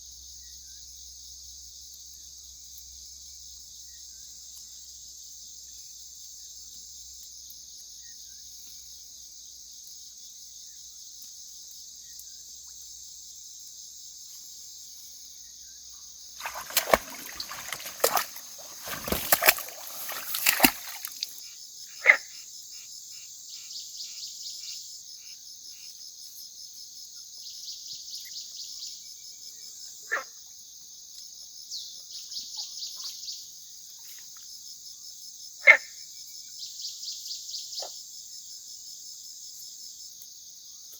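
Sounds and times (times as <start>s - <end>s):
loud splashing and knocking: 16.4s - 21.4s
pulsing insect chorus: 16.4s - 21.4s.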